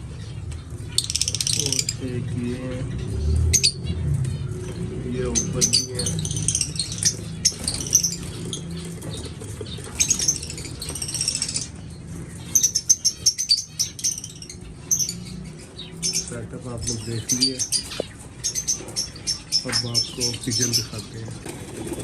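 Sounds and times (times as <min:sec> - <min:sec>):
birds chirping: 0:00.0 - 0:22.0
clicks of birds moving in cages: 0:00.0 - 0:22.0
wings fluttering: 0:06.1 - 0:11.7, 0:21.3 - 0:22.0.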